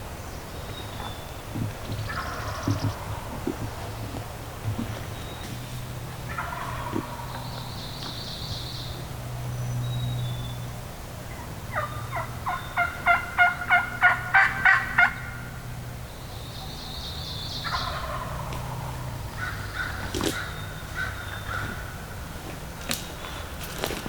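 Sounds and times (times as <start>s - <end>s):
turkey yelping: 1.6s - 7.8s, 11.3s - 15.6s, 17.6s - 22.2s.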